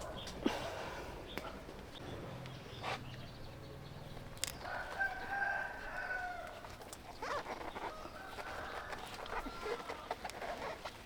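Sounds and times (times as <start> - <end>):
rooster crowing: 4.6 - 6.7.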